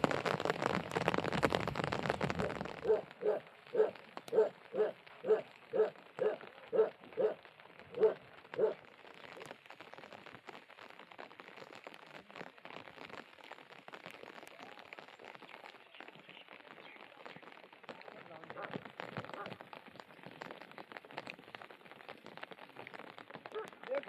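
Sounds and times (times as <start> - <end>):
steady rain falling: 0.0 - 24.0
dog barking: 2.8 - 8.8, 18.6 - 19.6, 23.5 - 24.0.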